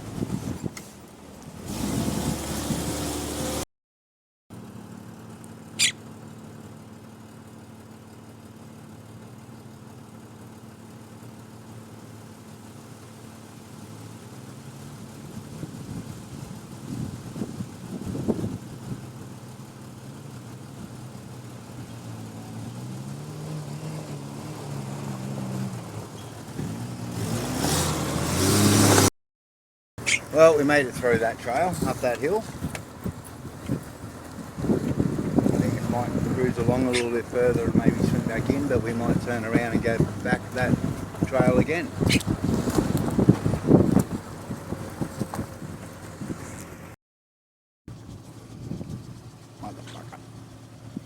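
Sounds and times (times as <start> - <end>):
car engine running at low revs: 0.0 - 3.6, 4.5 - 29.1, 30.0 - 47.0, 47.9 - 51.0
brief high squeak: 5.8 - 6.0, 30.0 - 30.3.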